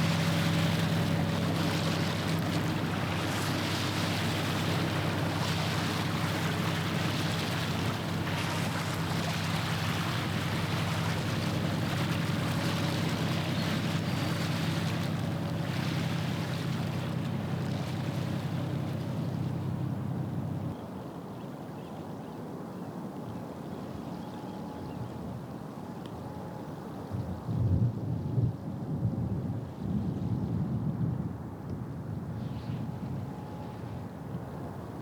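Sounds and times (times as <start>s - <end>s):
water wash: 0.0s - 20.1s
ship engine droning: 0.0s - 20.8s, 32.2s - 35.0s
wind: 0.0s - 35.0s.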